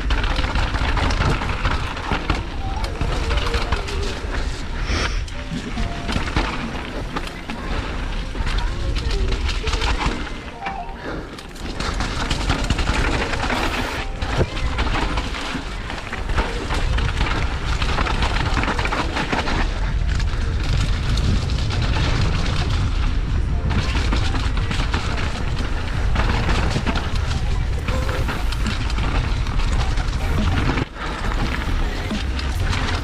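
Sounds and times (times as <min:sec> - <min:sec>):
bike knocking and rattling: 0:00.0 - 0:10.6, 0:11.3 - 0:33.0
bike tyre noise: 0:00.0 - 0:33.0
wind rumbling on microphone: 0:11.5 - 0:33.0.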